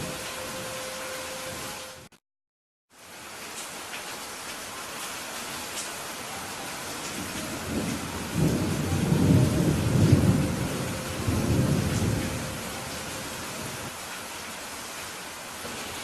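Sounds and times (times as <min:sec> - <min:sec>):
steady rain: 0:00.0 - 0:02.2, 0:02.9 - 0:16.0
thunder rumbling: 0:07.0 - 0:13.9.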